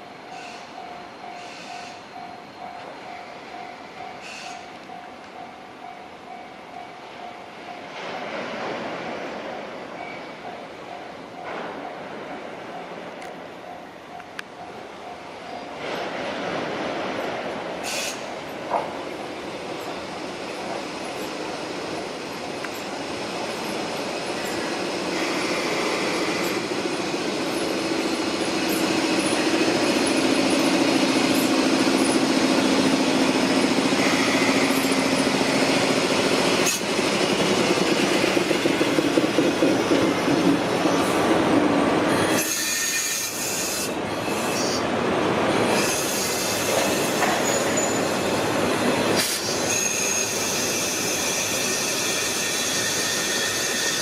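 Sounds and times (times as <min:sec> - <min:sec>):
train wheel squeal: 0:00.0 - 0:07.9, 0:17.8 - 0:18.3, 0:23.6 - 0:38.9, 0:42.1 - 0:44.9, 0:45.6 - 0:54.0
freight train running over rails: 0:00.0 - 0:54.0.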